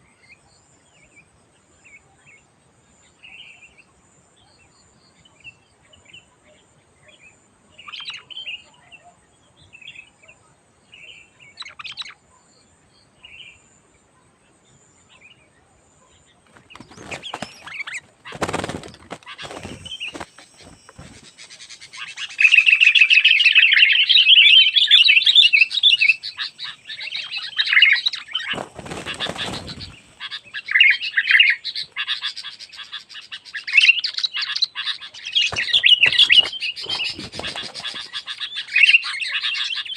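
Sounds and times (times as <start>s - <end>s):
birds chirping and chattering: 3.0s - 39.9s
rustling flapping noise: 16.4s - 22.1s, 28.0s - 30.4s, 35.4s - 38.2s.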